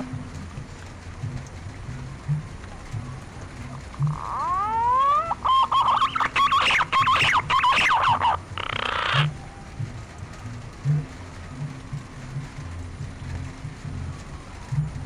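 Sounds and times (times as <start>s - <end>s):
pigeon whistling song: 4.0s - 9.5s.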